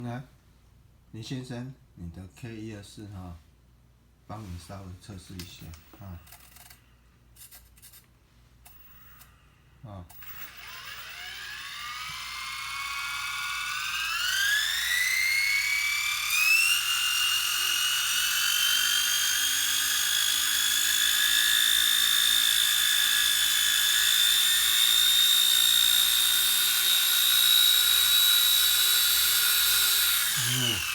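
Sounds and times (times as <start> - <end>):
rc helicopter motor whine: 10.2 - 30.9.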